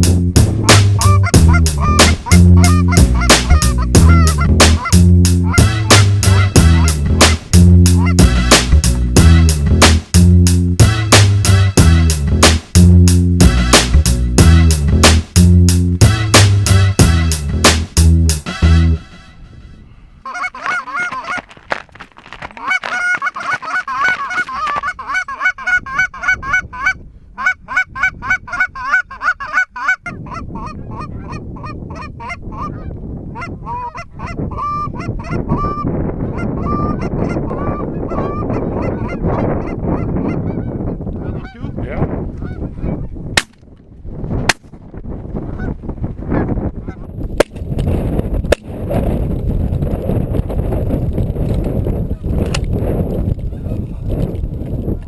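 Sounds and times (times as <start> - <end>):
wind noise: 0.0 - 55.0
geese honking: 0.6 - 7.3, 7.9 - 8.6, 20.2 - 21.6, 22.6 - 35.8, 36.4 - 40.6, 41.2 - 41.8
sharp cracks: 43.4 - 43.8.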